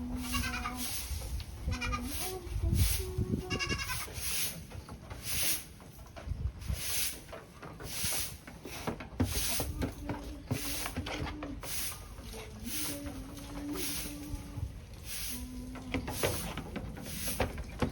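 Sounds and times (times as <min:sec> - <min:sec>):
goat bleating: 0:00.0 - 0:01.0, 0:01.7 - 0:02.2, 0:03.4 - 0:04.1.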